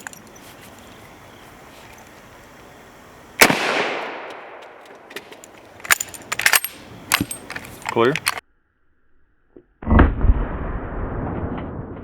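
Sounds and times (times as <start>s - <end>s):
rifle shot with echo: 3.4s - 4.6s.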